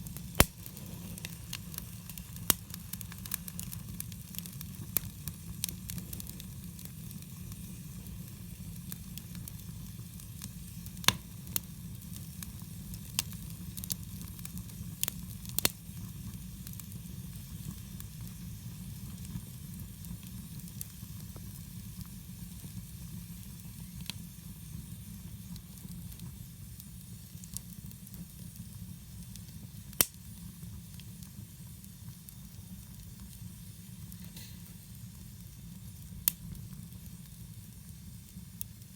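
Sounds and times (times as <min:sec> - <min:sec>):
campfire hissing: 0:00.0 - 0:38.9
fire crackling pops: 0:00.0 - 0:38.9.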